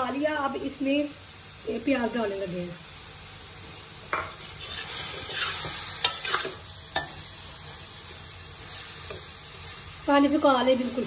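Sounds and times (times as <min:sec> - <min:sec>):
vegetables sizzling in a pan: 0:00.0 - 0:11.0
metal spatula scraping a pan: 0:04.1 - 0:07.5.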